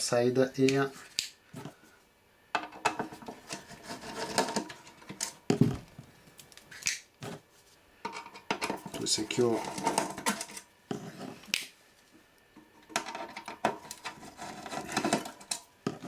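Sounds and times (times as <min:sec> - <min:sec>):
hand tools and metal parts clattering: 0:02.6 - 0:05.9, 0:08.0 - 0:11.5, 0:12.6 - 0:16.0.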